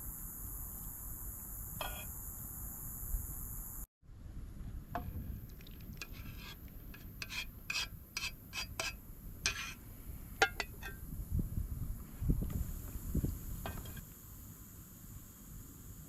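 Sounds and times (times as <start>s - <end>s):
steady high hiss: 0.0s - 3.9s, 4.8s - 16.0s
utensil scraping in a pan: 1.8s - 2.1s, 5.0s - 11.0s.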